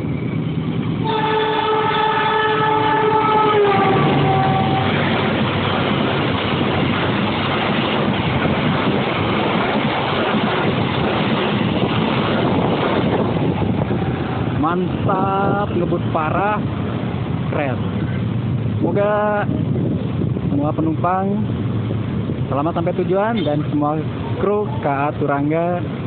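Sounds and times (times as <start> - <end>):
train wheels on rails: 0.0 - 26.0
train horn: 1.0 - 5.4.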